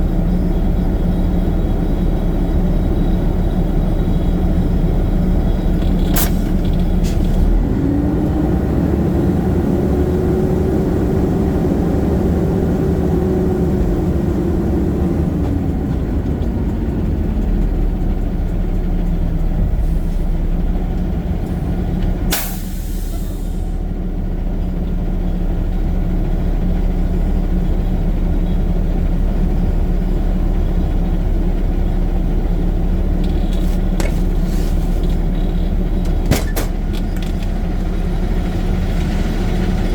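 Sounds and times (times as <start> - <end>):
garbage truck diesel engine: 0.0 - 39.9
air brakes hissing: 6.1 - 7.4, 22.3 - 23.8, 33.5 - 35.4.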